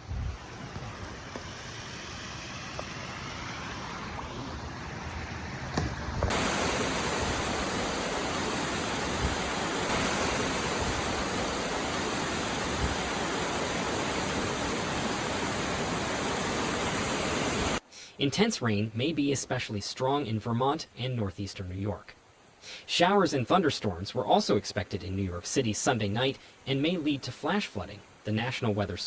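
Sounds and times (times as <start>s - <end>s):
rushing floodwater roar: 0.0s - 17.8s.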